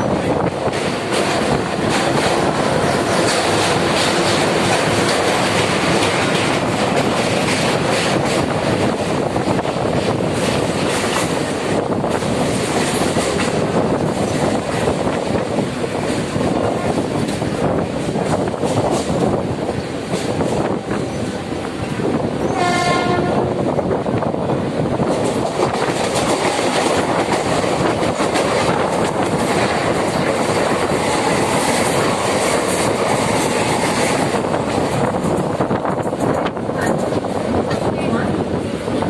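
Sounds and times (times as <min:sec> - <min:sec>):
train rumbling on rails: 0:00.0 - 0:39.0
wheels clicking and clattering: 0:25.0 - 0:37.3.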